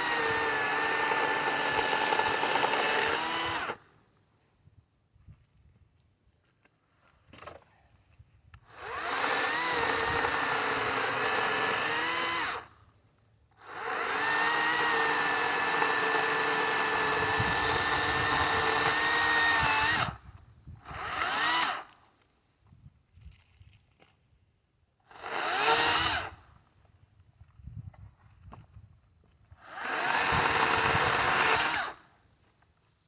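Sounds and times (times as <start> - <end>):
electric chainsaw cutting wood: 0.0 - 3.9, 8.7 - 12.8, 13.6 - 20.2, 20.8 - 22.0, 25.1 - 26.4, 29.6 - 32.1.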